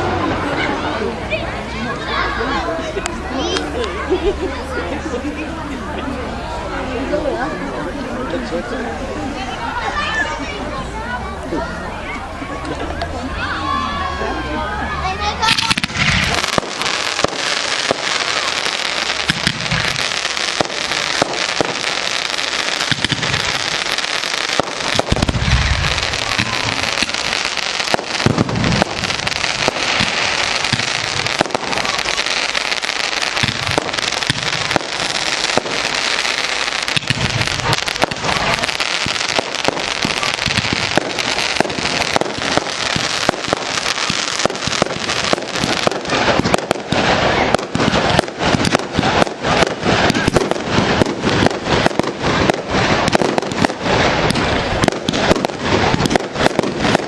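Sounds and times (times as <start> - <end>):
fireworks cracking and crackling: 2.1 - 8.4, 15.2 - 57.0
deep firework booms: 15.5 - 57.0.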